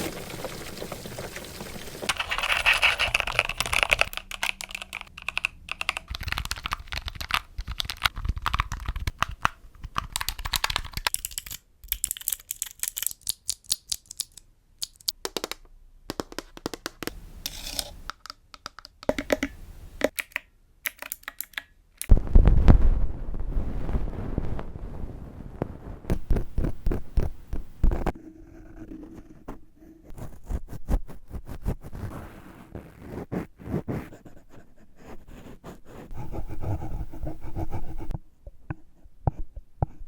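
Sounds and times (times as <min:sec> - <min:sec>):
rapid tapping and clicking: 0:02.1 - 0:11.1.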